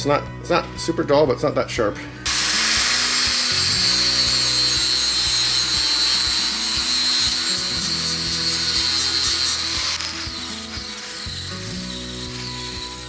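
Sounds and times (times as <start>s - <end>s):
flap disc sander grinding steel: 2.3s - 13.0s.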